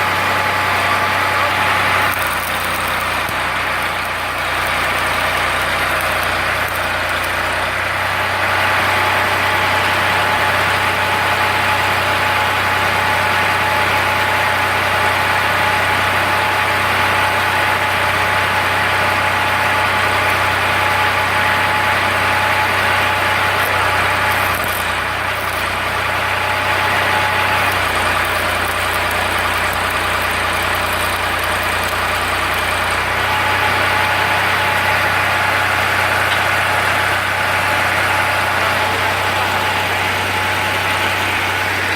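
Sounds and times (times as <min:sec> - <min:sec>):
tractor engine running: 0:00.0 - 0:41.9
high steady whine: 0:22.2 - 0:41.9.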